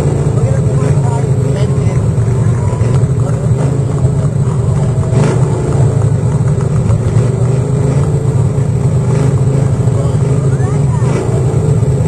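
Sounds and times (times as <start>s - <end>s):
truck engine droning: 0.0s - 12.0s.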